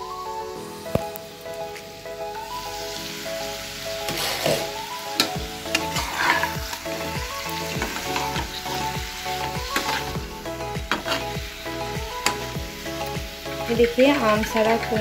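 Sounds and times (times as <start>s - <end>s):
fruit sizzling in oil: 0.2s - 15.0s
metal spatula scraping pan: 5.6s - 7.0s, 7.6s - 10.2s, 10.9s - 11.4s.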